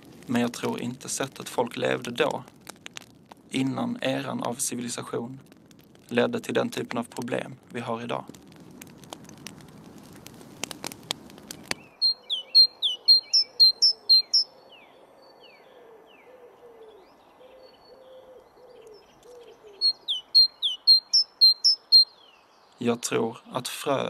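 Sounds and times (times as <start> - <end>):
wood fire crackling: 0.0 - 14.1
songbird singing: 11.5 - 23.6.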